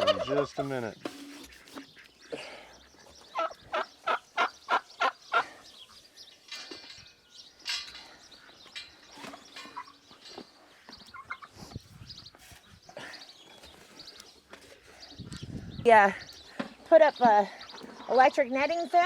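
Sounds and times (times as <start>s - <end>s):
turkey calling: 0.0s - 2.4s, 3.3s - 6.0s, 9.2s - 11.6s
poultry flock calling: 0.0s - 7.0s, 7.6s - 19.0s.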